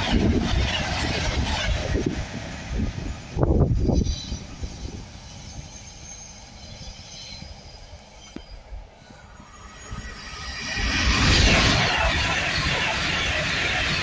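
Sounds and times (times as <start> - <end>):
electric train approaching: 0.0 - 14.0
freight train wheels running: 0.0 - 14.0
faint high squealing: 3.7 - 12.9.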